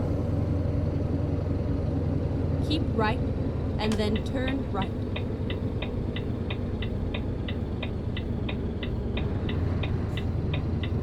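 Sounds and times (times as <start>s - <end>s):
truck engine drone: 0.0s - 11.0s
turn signal ticking: 3.8s - 11.0s.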